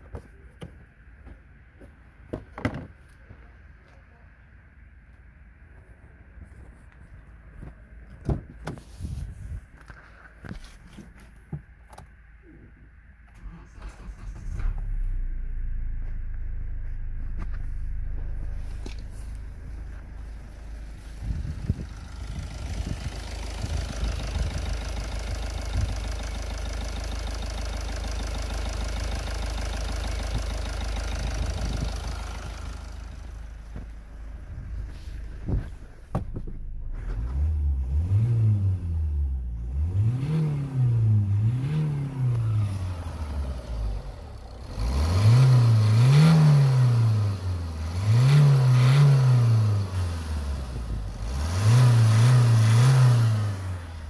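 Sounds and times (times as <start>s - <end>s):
diesel engine idling and revving: 12.4s - 54.0s.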